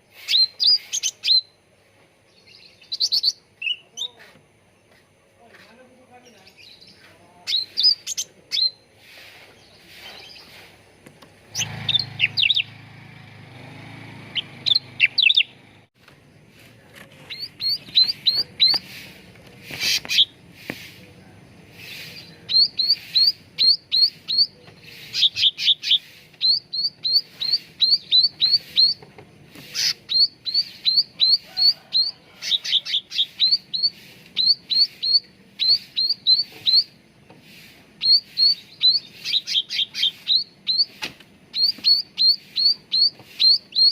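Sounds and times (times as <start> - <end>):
songbird chirping: 0.0 - 43.9.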